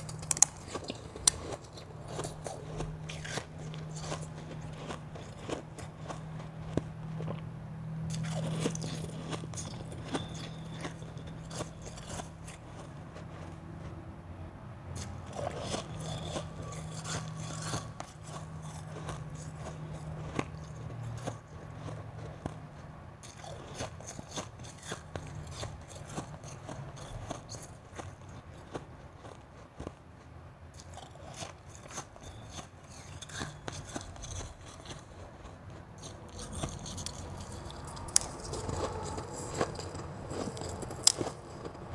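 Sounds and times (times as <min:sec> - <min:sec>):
chewing and crunching ice: 0:00.0 - 0:41.9
low hum: 0:34.1 - 0:41.9.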